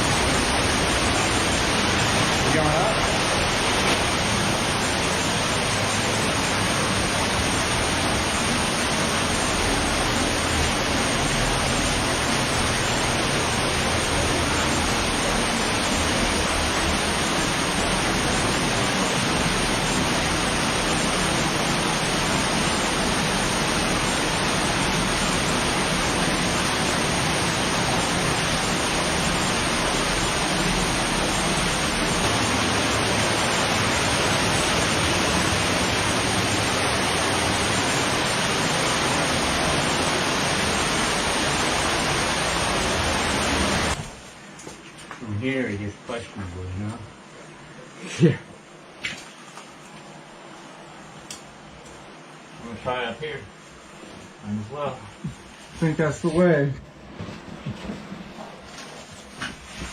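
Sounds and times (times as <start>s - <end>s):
cave stream rushing water: 0.0s - 46.3s.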